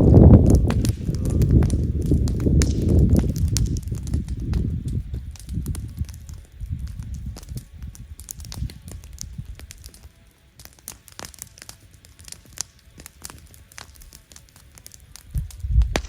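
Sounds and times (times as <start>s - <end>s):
low rumble: 0.0s - 8.2s
campfire crackling and popping: 0.0s - 16.0s.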